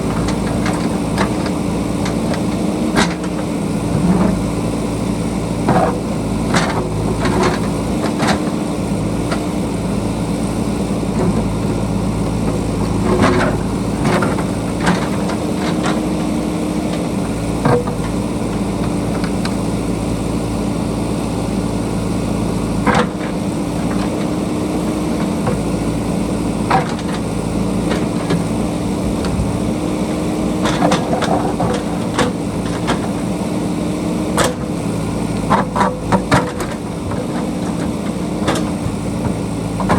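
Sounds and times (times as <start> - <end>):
diesel engine running: 0.0 - 39.9
digging clanks and knocks: 11.1 - 19.7, 22.8 - 33.4, 34.2 - 39.9.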